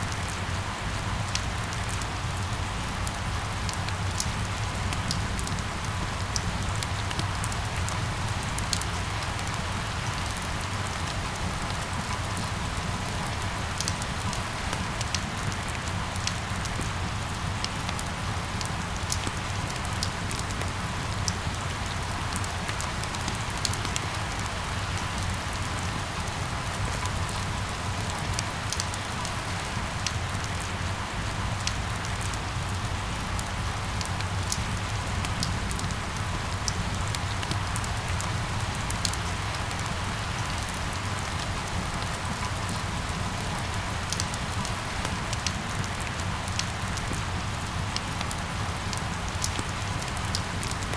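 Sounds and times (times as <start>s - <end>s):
rain drop ticks: 1.3s - 2.6s, 18.6s - 26.0s, 27.0s - 30.9s, 31.6s - 50.9s.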